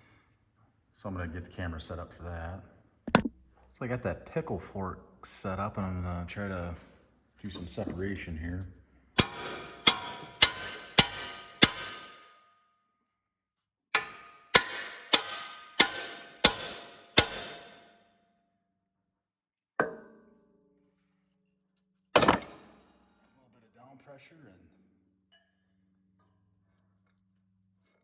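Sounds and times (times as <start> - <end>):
hammer striking metal: 9.2 - 12.4, 14.0 - 18.0, 22.2 - 22.8.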